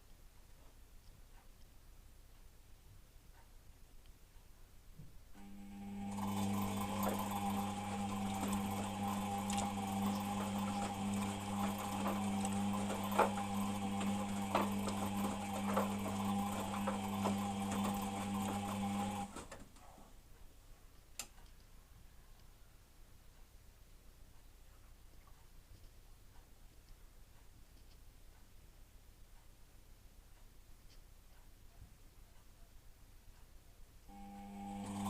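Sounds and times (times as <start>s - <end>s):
washing machine motor hum: 5.4s - 20.0s, 34.1s - 35.0s.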